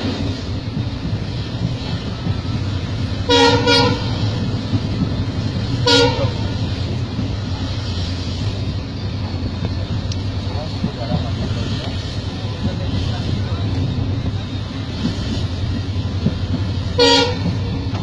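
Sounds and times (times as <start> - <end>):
train carriage rumbling on track: 0.0 - 18.0
train horn toots: 3.2 - 4.4, 5.8 - 6.6, 16.9 - 17.6.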